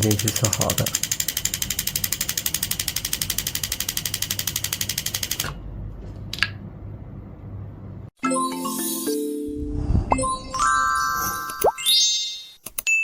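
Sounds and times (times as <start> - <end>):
relay clicking rapidly: 0.0 - 5.5.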